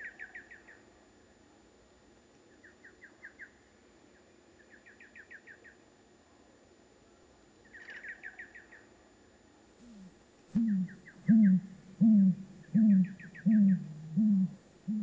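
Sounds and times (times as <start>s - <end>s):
small bird chirping: 9.8s - 15.0s.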